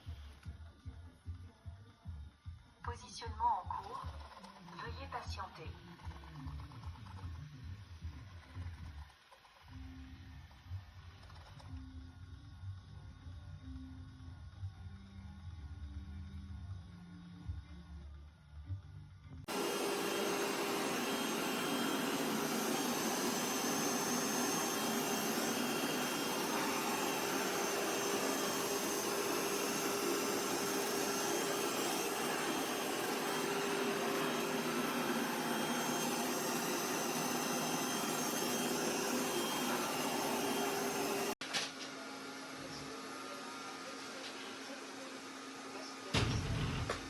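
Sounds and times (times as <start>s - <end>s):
robot vacuum suction motor: 19.5s - 41.4s.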